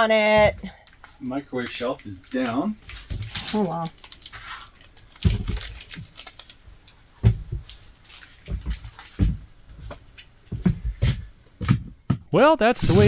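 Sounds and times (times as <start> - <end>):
objects knocking and clunking: 7.2 - 12.3.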